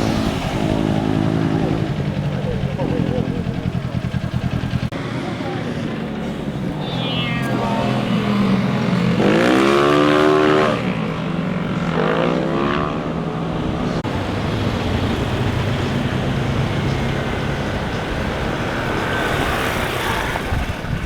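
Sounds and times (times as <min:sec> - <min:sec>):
motorcycles revving past: 0:00.0 - 0:21.0
low engine hum: 0:13.2 - 0:21.0.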